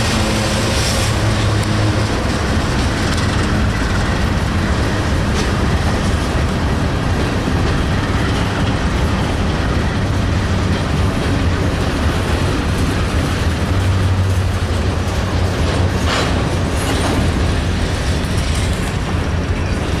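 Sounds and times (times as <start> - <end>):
steady low rumble: 0.0 - 20.0
train wheels clattering on rails: 0.0 - 20.0.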